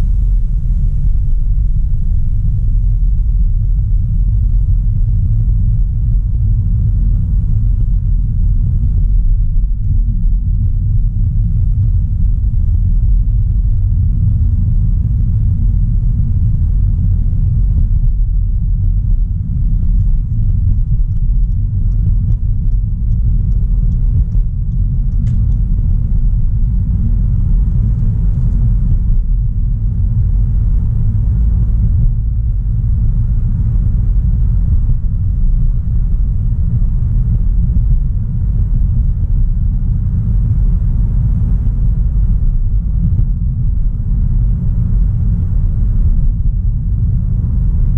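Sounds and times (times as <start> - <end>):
road and engine rumble: 0.0 - 47.9
faint ticks: 19.9 - 26.0.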